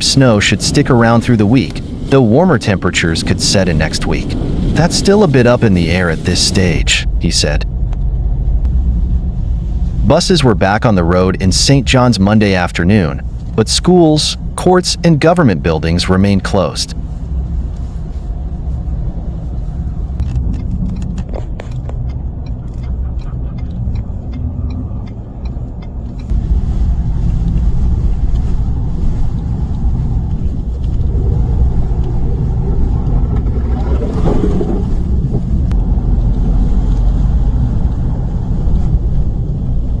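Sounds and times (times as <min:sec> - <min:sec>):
low rumble: 0:00.0 - 0:40.0
scattered clicks: 0:20.2 - 0:26.4.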